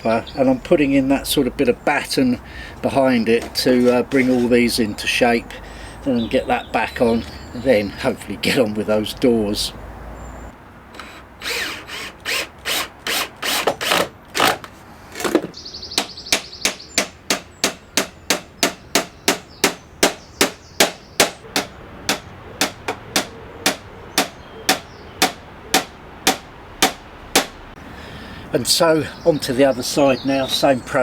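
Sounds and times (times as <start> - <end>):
hammer driving nails into wood: 16.3 - 27.6.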